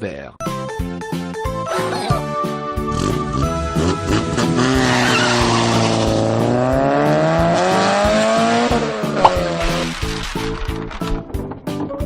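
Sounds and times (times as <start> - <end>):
cartoon race car engine revving: 2.9 - 9.0
tyre screech: 4.6 - 6.2.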